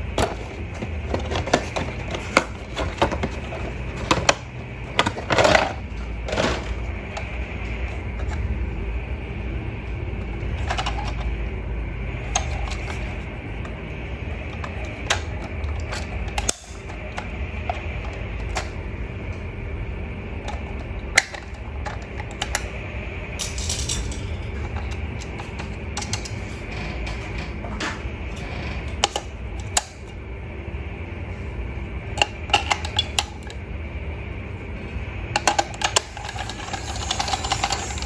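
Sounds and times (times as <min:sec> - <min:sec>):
steady low hum: 0:00.0 - 0:38.0
plastic toy clicks and knocks: 0:32.2 - 0:33.6, 0:35.4 - 0:38.0.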